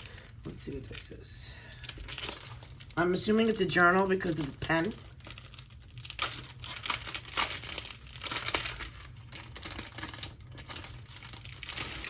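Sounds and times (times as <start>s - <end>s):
wrapping crinkling and tearing: 0.0s - 12.0s.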